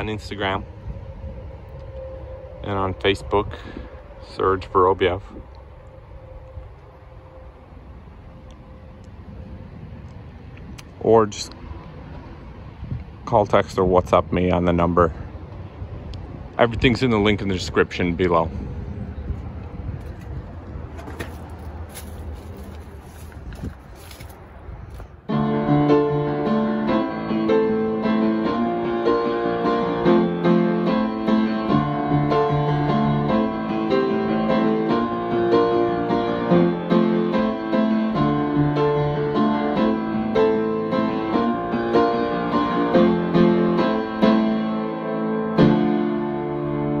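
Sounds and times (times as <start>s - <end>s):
piano music: 25.3s - 47.0s.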